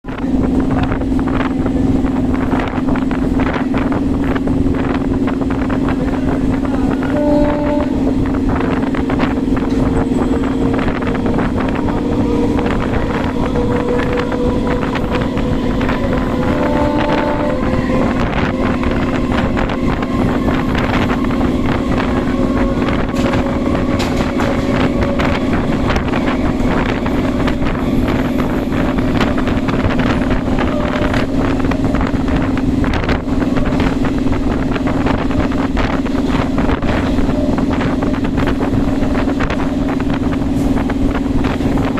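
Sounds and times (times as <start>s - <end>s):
electric train running fast: 0.0s - 41.9s
wind on microphone: 0.0s - 41.9s
wheels clicking over rails: 8.2s - 41.9s.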